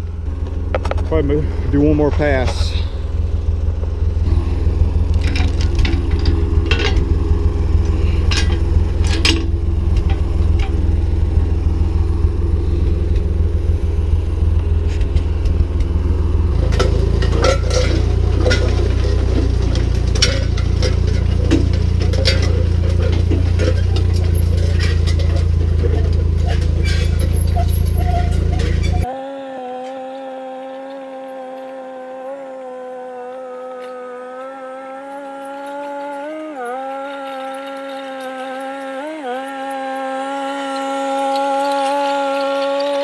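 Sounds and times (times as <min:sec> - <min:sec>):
tractor engine running: 0:00.0 - 0:43.0
metal chains clinking and rattling: 0:05.0 - 0:10.8, 0:16.6 - 0:29.1.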